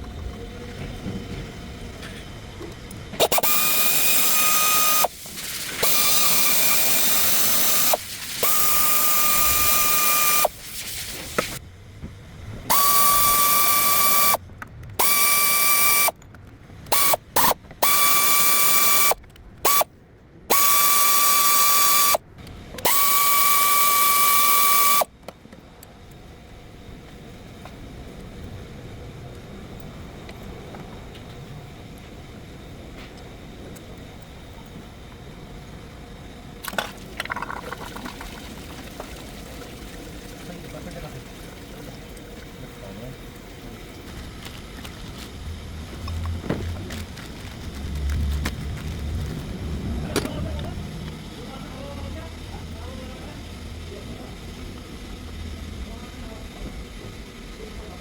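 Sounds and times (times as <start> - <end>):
quiet steady hum: 0.0 - 58.0
power tool whining in bursts: 3.2 - 10.6, 12.7 - 14.4, 15.0 - 16.2, 16.9 - 19.9, 20.5 - 22.2, 22.8 - 25.1.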